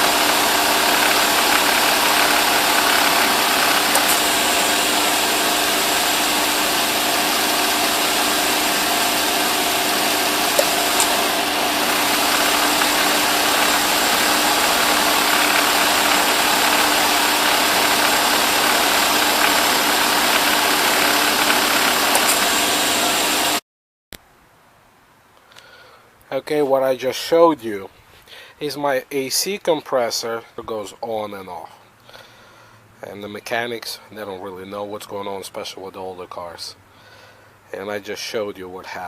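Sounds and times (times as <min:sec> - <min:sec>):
compressor clutch clicking: 0:00.0 - 0:23.4
car engine idling: 0:00.0 - 0:23.6.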